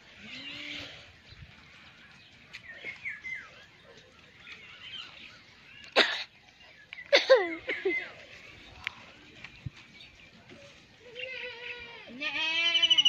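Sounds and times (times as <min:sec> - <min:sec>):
birds chirping: 0:00.1 - 0:12.0.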